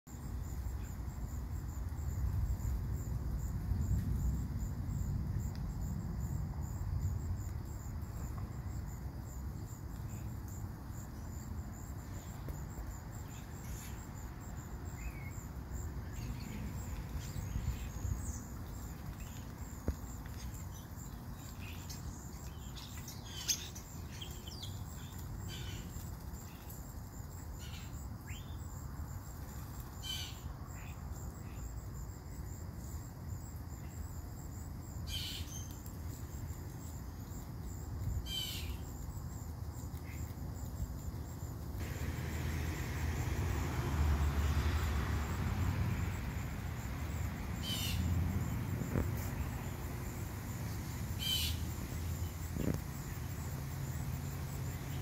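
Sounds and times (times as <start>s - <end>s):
high insect trill: 0.1s - 55.0s
bird calls and chirps: 20.3s - 26.7s, 51.2s - 51.6s
low steady rumble: 41.6s - 53.9s.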